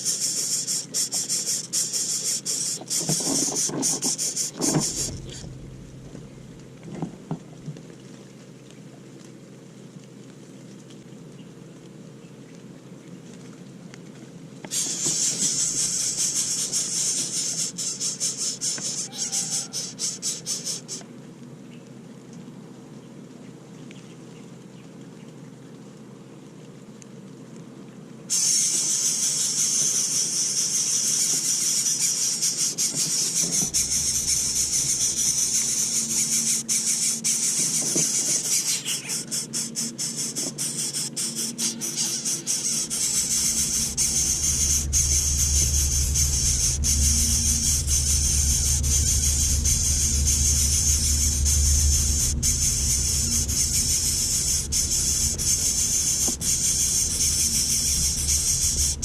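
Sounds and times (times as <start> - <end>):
high-pitched insect drone: 0.0 - 6.6, 14.7 - 21.0, 28.3 - 59.0.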